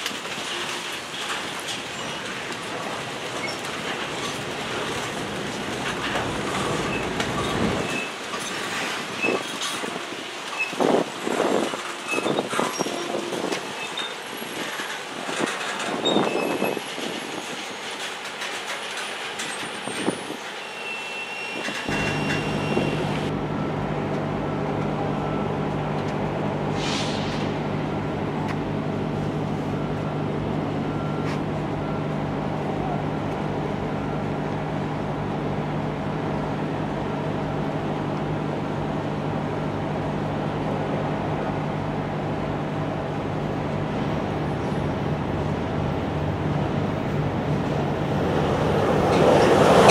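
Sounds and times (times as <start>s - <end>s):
train wheels clattering and squealing: 0.0s - 23.3s, 49.0s - 49.9s
engine drone with low hum: 21.8s - 49.9s.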